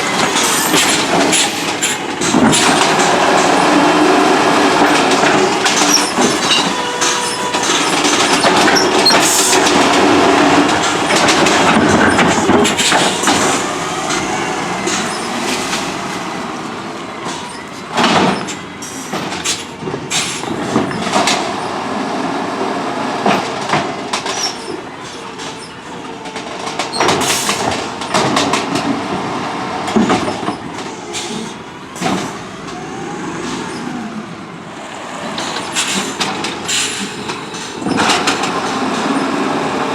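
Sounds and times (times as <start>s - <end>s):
garbage truck running: 0.0s - 39.9s
metallic clanks and knocks: 4.8s - 16.0s.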